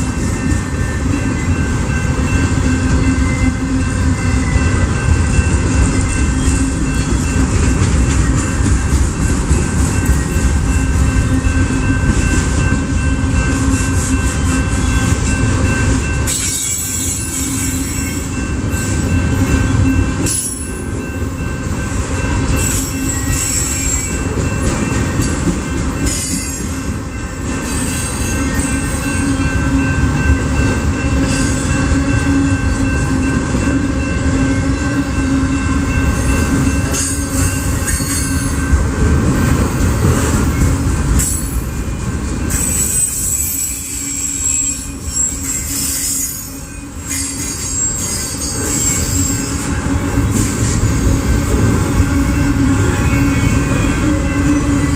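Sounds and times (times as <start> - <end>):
train wheels rumbling on rail: 0.0 - 54.9
high-pitched wheel squeal: 42.5 - 49.6.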